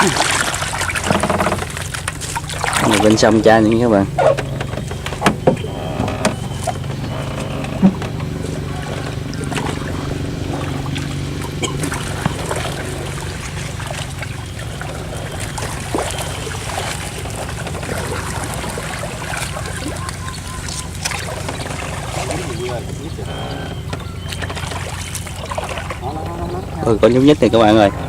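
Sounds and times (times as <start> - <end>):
steady low hum: 0.0 - 28.0
water trickling and splashing: 0.0 - 28.0
small knocks: 0.8 - 3.2, 4.1 - 9.8.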